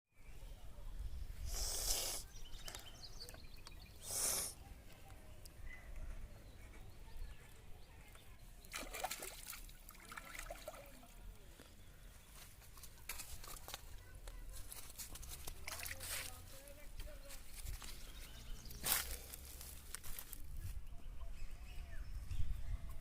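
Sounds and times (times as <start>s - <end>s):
splash-like hiss: 1.4s - 2.3s, 4.0s - 4.6s
water sloshing and trickling: 8.6s - 11.5s, 14.6s - 16.5s.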